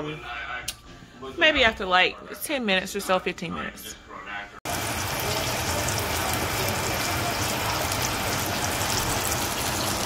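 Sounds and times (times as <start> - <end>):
pork chops sizzling in oil: 4.7 - 10.0.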